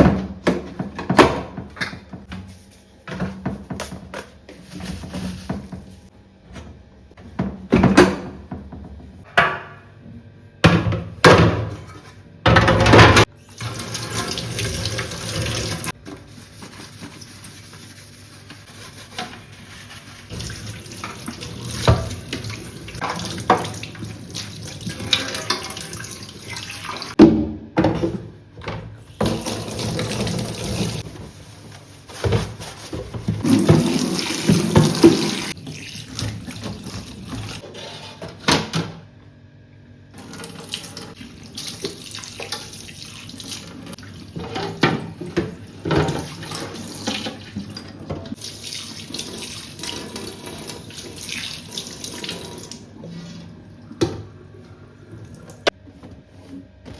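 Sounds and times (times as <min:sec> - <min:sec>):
items clattering against sink: 0:44.4 - 0:48.4.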